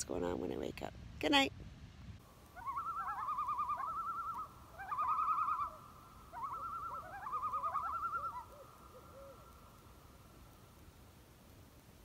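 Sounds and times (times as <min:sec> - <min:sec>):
birds trilling: 0:02.6 - 0:09.7.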